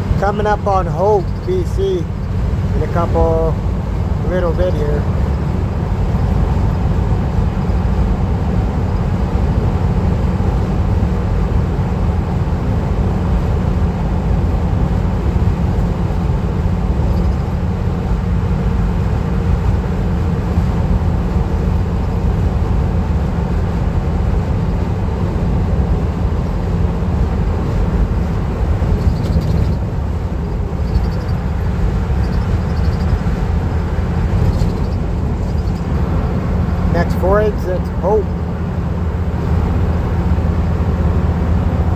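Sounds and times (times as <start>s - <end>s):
van road and engine rumble: 0.0s - 41.9s.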